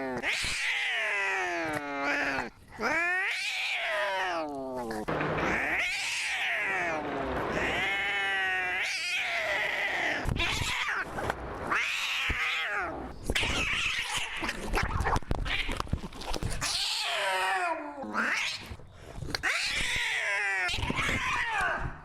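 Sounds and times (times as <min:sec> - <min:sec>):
cat yowling: 0:00.2 - 0:11.0.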